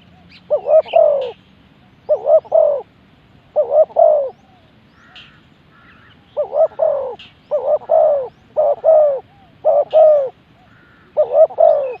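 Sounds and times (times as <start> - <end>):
dove cooing: 0.0 - 1.4, 2.0 - 2.9, 3.5 - 12.0
small birds chirping: 0.0 - 12.0.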